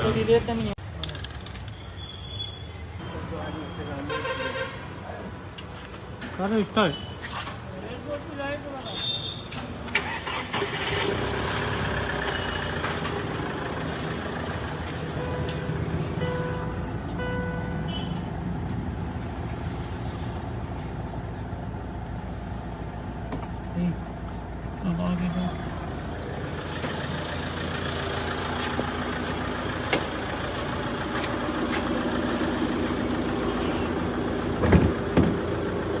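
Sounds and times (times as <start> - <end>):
diesel engine running: 10.0 - 36.0.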